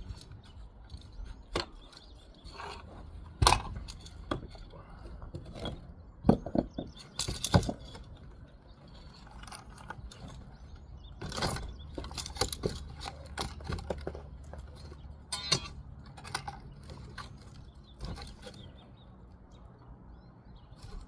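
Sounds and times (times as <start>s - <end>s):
masonry tools on brick: 0.0s - 19.2s.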